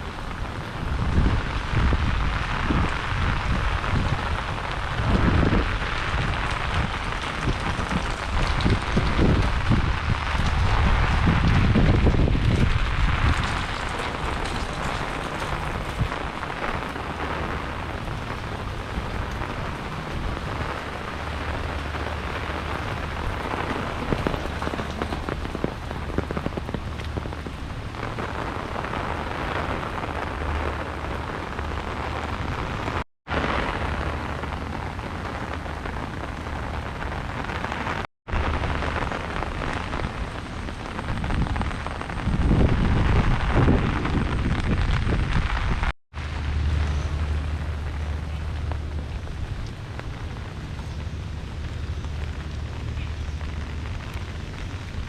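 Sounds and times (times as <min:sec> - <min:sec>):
heavy rain: 0:00.0 - 0:55.0
low rumble: 0:38.4 - 0:55.0.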